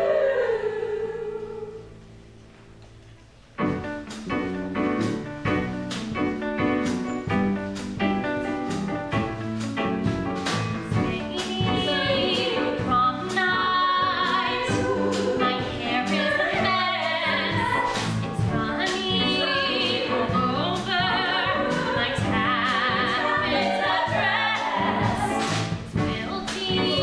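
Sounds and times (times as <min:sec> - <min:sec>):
singers with heavy vibrato: 0:00.0 - 0:02.0, 0:11.1 - 0:25.6.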